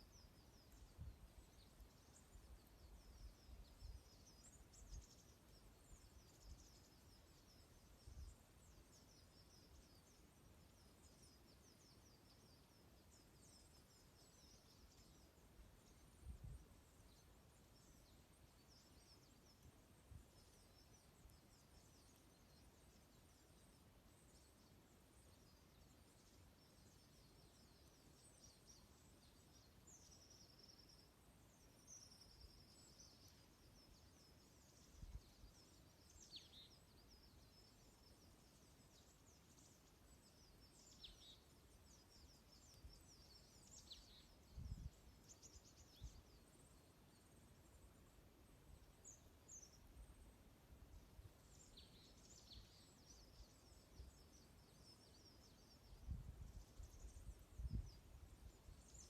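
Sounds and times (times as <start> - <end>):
small songbirds chirping: 0.0 - 59.0.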